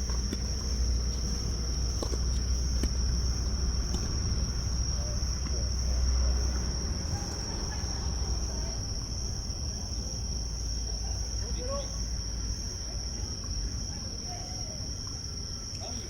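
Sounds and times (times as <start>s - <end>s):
tennis balls being struck: 0.0s - 5.7s
crickets chirring: 0.0s - 16.0s.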